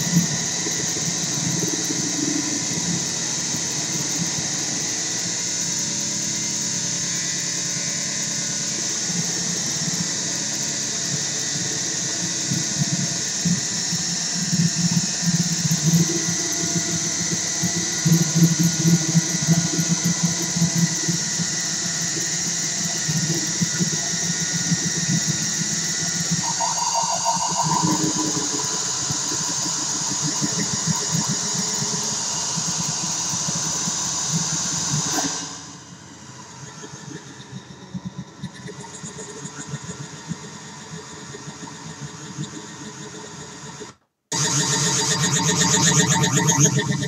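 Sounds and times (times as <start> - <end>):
buzzing synth drone: 0.0 - 35.2, 44.4 - 47.0
higher synth tone: 26.4 - 32.0.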